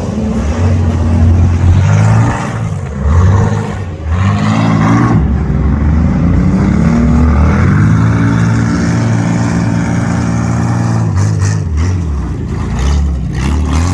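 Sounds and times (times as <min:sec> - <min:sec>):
car engine revving high: 0:00.0 - 0:13.9.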